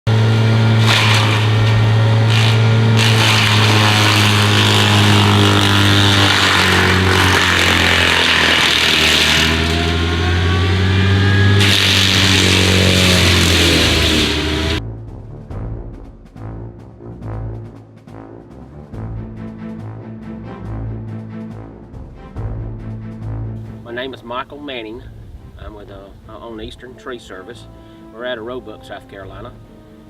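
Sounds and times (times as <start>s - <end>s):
excavator diesel engine running: 0.1s - 14.8s
mulcher head rushing noise: 0.1s - 14.8s.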